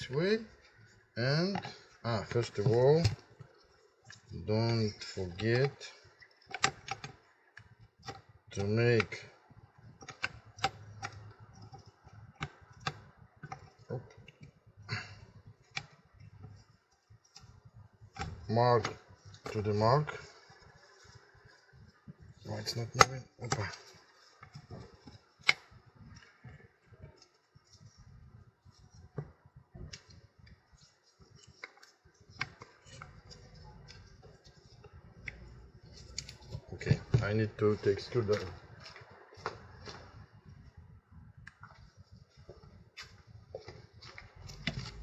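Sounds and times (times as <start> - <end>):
plastic and metal parts clicking: 5.3 - 9.2, 9.8 - 14.6.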